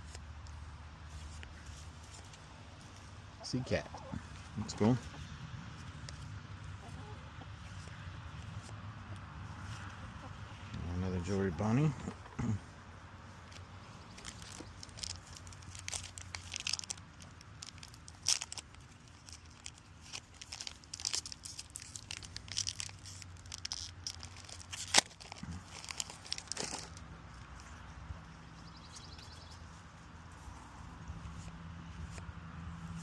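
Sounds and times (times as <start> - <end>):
cards rustling: 13.3 - 27.9
foil wrappers crinkling and tearing: 13.4 - 27.8.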